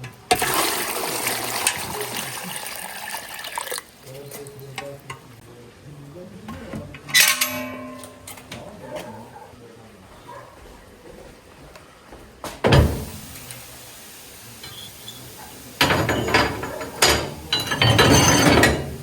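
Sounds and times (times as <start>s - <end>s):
water running: 0.3s - 5.1s, 12.7s - 19.0s
metal dish clanking: 7.1s - 8.6s, 15.5s - 19.0s.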